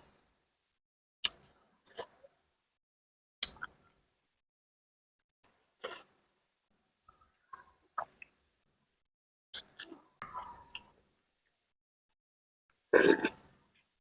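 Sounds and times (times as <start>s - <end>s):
close-miked eating sounds: 9.6s - 11.6s.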